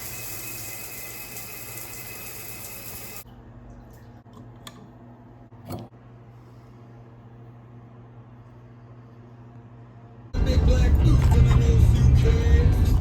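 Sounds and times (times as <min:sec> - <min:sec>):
water running from a tap: 0:00.0 - 0:03.2.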